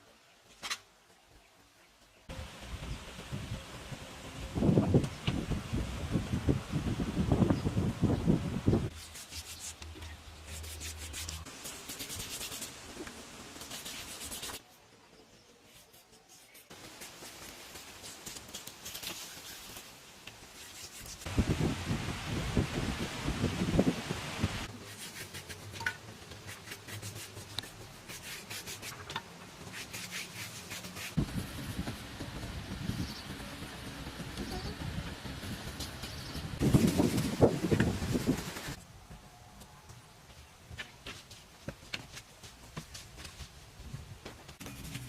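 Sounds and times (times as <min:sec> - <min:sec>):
scraping strokes on surface: 0:08.9 - 0:14.7, 0:15.6 - 0:21.3, 0:24.7 - 0:31.2.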